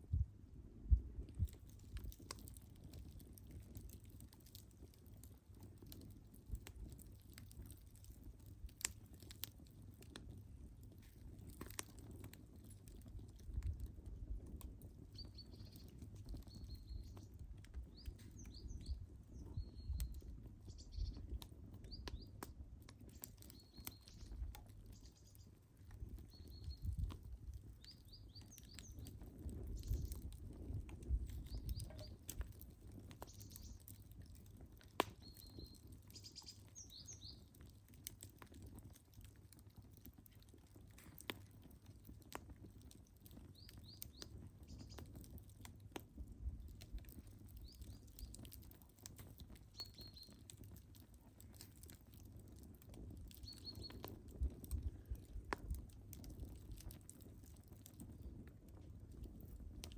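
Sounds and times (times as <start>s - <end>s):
wood fire crackling: 0.0s - 59.9s
bird chirps: 35.2s - 37.4s, 49.7s - 50.4s, 53.4s - 54.0s.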